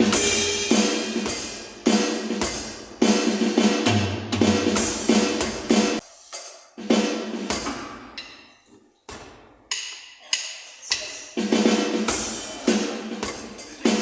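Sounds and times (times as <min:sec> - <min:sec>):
ringing drum hits: 0:00.0 - 0:02.8
electronic drum beat: 0:00.0 - 0:06.0, 0:10.9 - 0:14.0.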